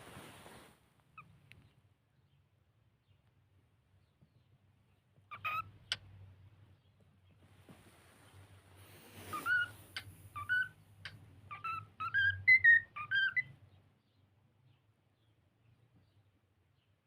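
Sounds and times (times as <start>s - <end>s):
cockatiel whistling: 9.2s - 13.6s.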